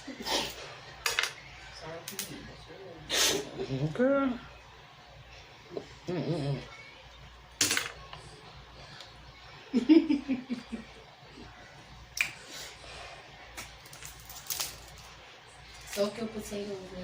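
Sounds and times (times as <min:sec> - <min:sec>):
crab shells cracking: 0:13.6 - 0:15.0.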